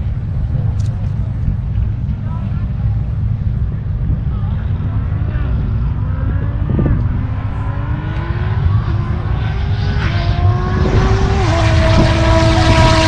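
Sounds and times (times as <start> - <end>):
wind rumble on microphone: 0.0 - 13.0
race car engine accelerating: 3.8 - 13.0.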